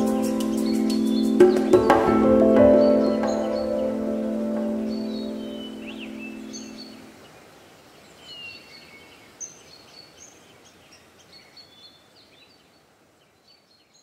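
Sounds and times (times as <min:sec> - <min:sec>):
birds chirping and whistling: 0:00.0 - 0:07.1
faint hiss: 0:00.0 - 0:14.0.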